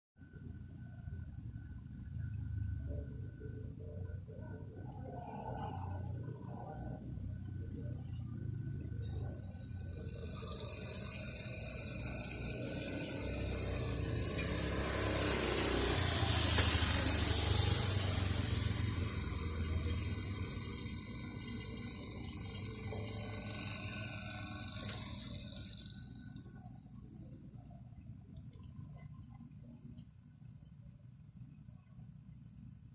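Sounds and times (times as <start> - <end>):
low steady hum: 0.2 - 32.9
gas hissing through hoses: 8.0 - 27.0.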